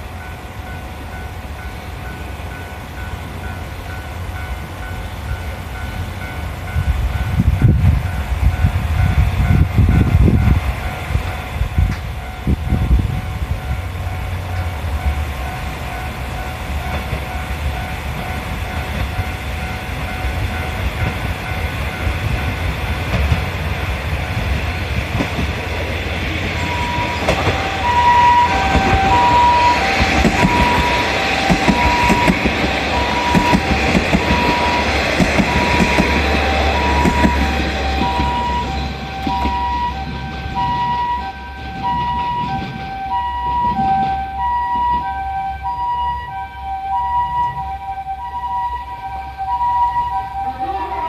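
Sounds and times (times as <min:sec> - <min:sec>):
train rumbling with wheel clatter: 0:00.0 - 0:48.0
ambulance two-tone siren: 0:26.4 - 0:51.0.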